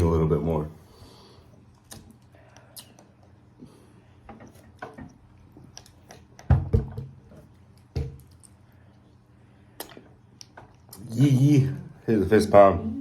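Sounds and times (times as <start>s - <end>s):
chewing with mouth clicks: 1.7s - 3.4s.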